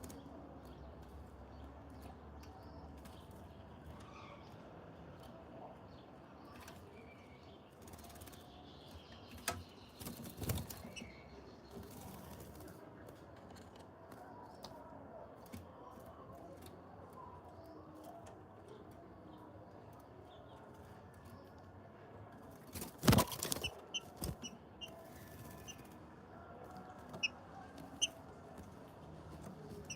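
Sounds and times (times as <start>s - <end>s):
faint bird chirps: 6.5s - 12.4s
birds flapping wings: 10.0s - 11.1s, 22.6s - 24.5s.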